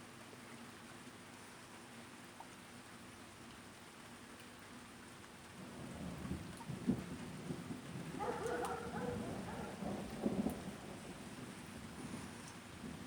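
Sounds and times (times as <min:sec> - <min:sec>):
thunder rolling: 0:06.9 - 0:13.0
rain hissing: 0:07.9 - 0:13.0.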